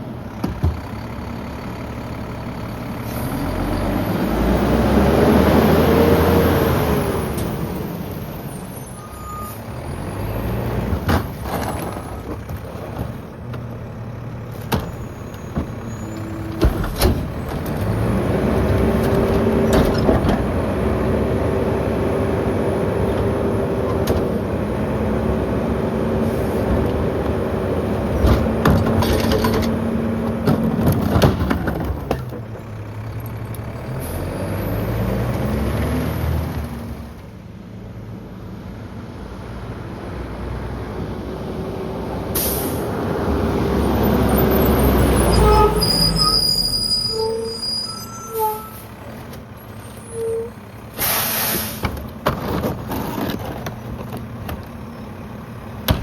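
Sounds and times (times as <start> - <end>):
garbage truck diesel engine revving: 0.0 - 8.7, 9.6 - 37.2, 39.9 - 47.4.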